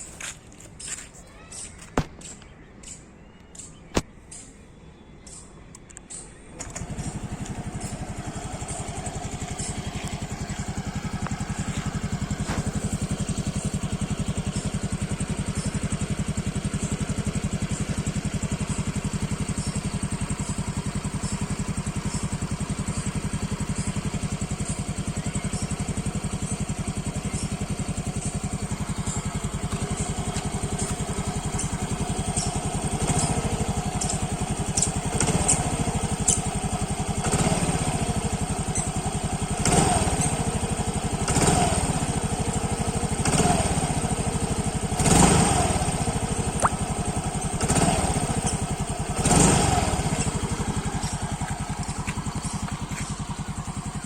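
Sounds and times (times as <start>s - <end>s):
scooter engine idling: 5.2s - 54.0s.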